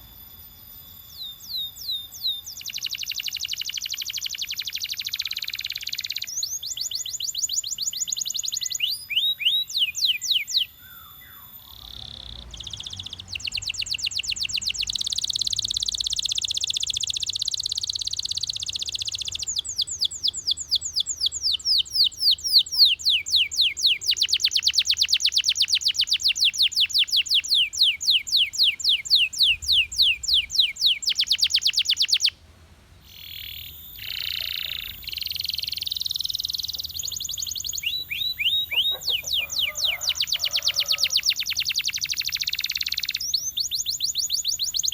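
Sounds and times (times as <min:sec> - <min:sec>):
canary singing trills: 0:00.0 - 0:32.4, 0:33.0 - 0:44.9.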